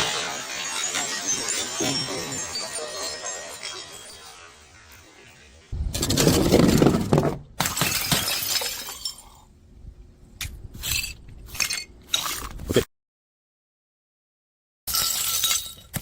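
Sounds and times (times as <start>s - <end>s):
sharp crashes with clinking: 0.0s - 4.4s.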